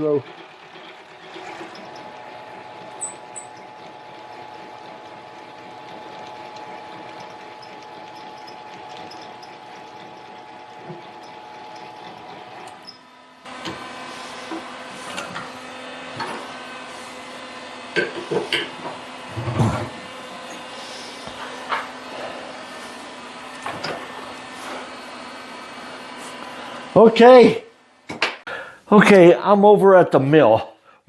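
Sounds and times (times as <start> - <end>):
steady machine hum: 0.5 - 12.9
mini lathe whining: 0.6 - 12.9.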